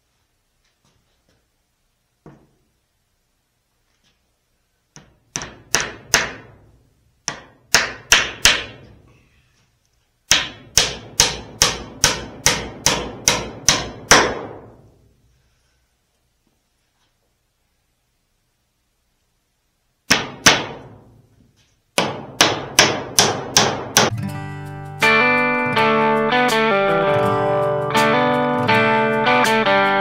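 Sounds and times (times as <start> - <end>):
hammer driving nails into wood: 5.0 - 6.6, 7.2 - 9.0, 10.3 - 14.8, 20.1 - 21.0, 22.0 - 24.1.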